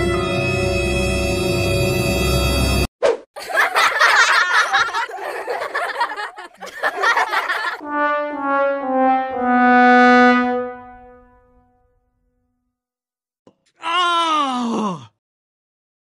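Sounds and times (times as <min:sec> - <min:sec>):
descending trombone notes: 0:07.8 - 0:11.6.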